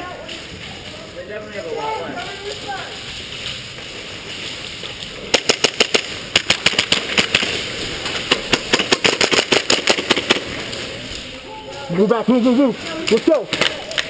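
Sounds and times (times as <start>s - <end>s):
airsoft guns firing: 5.2s - 10.7s, 13.0s - 14.0s.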